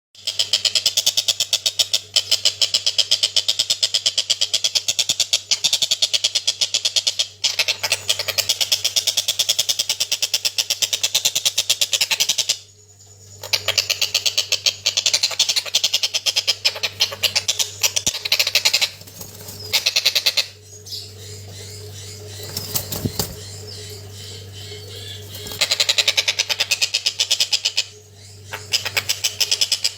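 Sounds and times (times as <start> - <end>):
faint low hum: 0.3 - 29.9
young kingfisher begging calls: 19.6 - 29.9.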